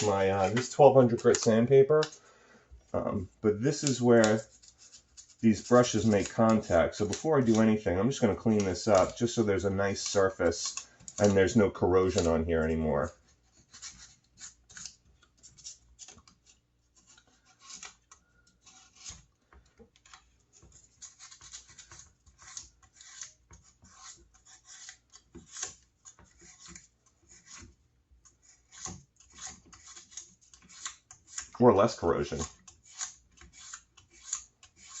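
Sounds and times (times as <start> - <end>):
sandpaper scratching metal: 3.7 - 12.3, 20.8 - 25.8, 28.4 - 35.0.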